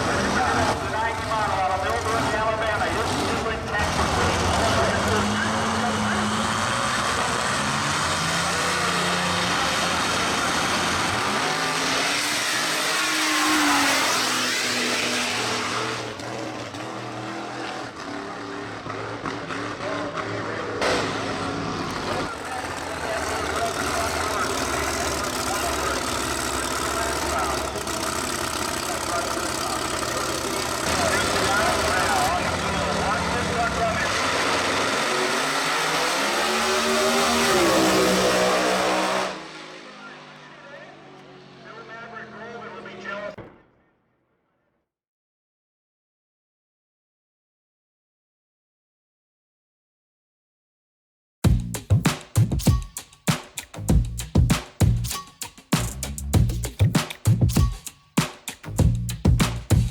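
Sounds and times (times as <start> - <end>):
drag-racing truck engine passing: 0.0 - 43.4
loud burst: 20.8 - 34.9.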